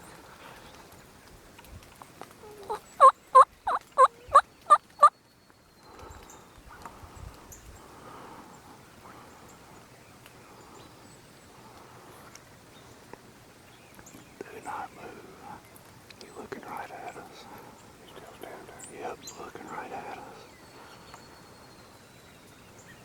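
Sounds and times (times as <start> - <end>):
turkey yelps: 2.4 - 5.1
faint low whispering: 14.2 - 21.7.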